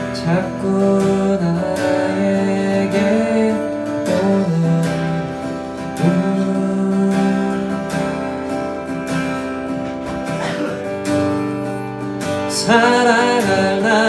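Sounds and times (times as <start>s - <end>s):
person singing: 0.0s - 8.5s, 12.4s - 14.0s
acoustic guitar strumming chords: 0.0s - 14.0s.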